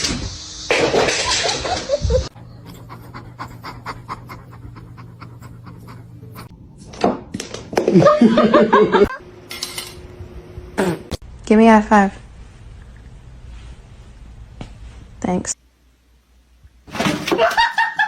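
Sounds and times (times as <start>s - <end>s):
pet animal panting: 2.3s - 6.5s.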